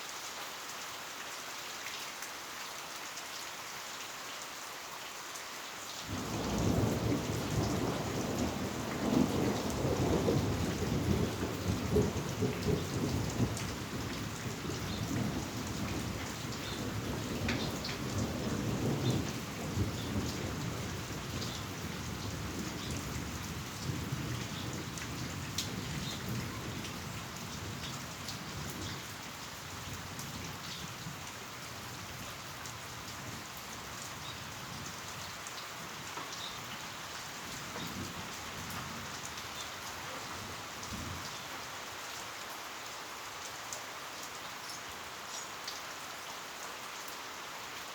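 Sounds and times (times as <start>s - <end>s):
heavy rain falling: 0.0s - 47.9s
low rumble of thunder: 6.1s - 32.3s, 37.4s - 39.6s, 40.4s - 41.4s.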